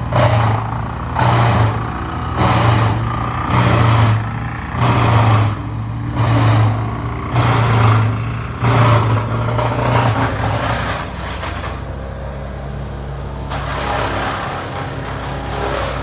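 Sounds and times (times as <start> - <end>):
large engine surging: 0.0 - 16.0.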